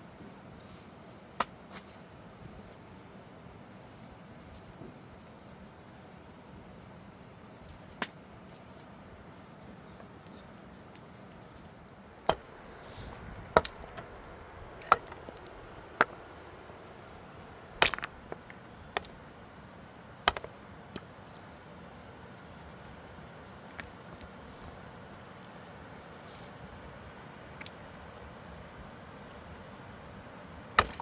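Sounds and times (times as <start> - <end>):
hard objects clinking together: 13.6 - 14.1, 14.8 - 16.3, 17.8 - 19.2, 20.3 - 20.5.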